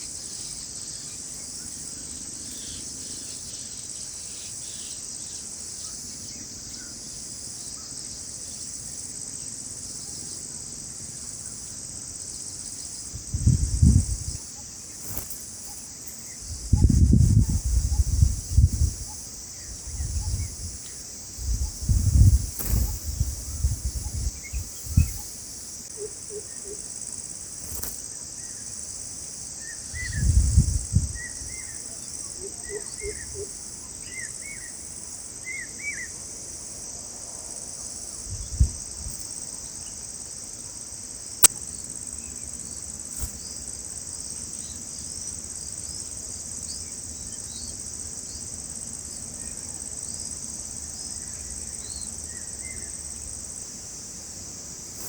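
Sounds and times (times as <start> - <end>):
insects chorus: 0.0 - 55.0
faint bird chirps: 14.0 - 25.4.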